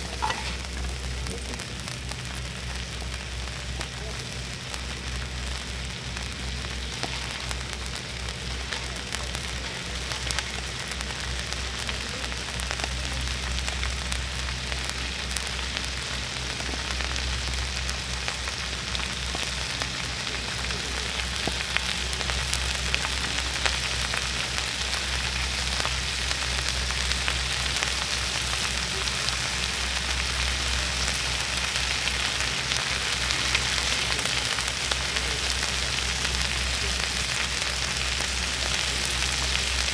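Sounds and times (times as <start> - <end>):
fire crackling and popping: 0.0 - 39.9
fish sizzling: 0.0 - 39.9
low steady hum: 0.0 - 39.9.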